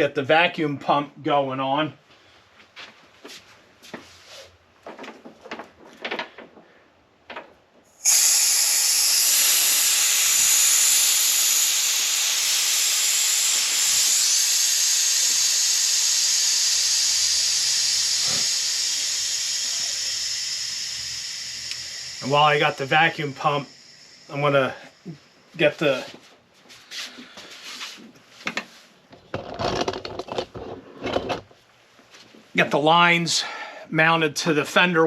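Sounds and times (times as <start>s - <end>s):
gas hissing through hoses: 7.9s - 26.2s.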